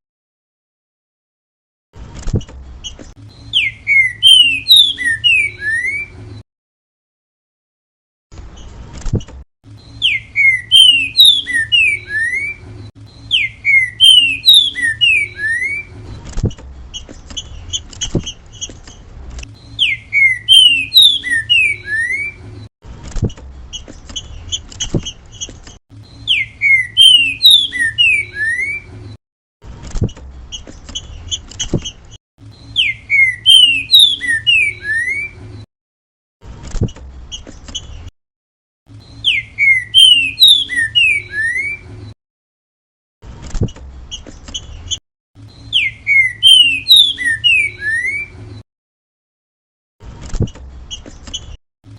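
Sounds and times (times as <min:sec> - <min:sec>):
bird whistling song: 0:02.8 - 0:06.2, 0:09.8 - 0:16.0, 0:19.6 - 0:22.5, 0:25.4 - 0:29.0, 0:30.5 - 0:35.4, 0:38.9 - 0:42.2, 0:44.1 - 0:48.4.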